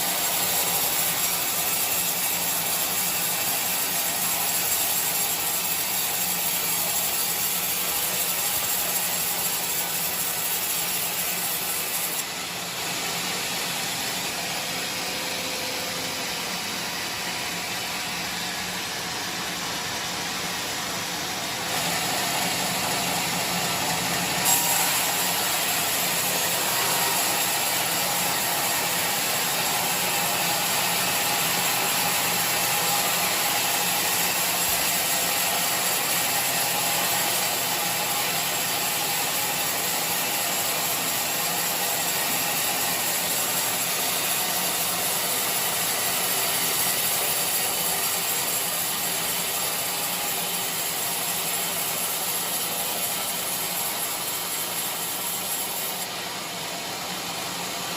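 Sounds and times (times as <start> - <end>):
sawmill machinery hissing: 0.0 - 57.9.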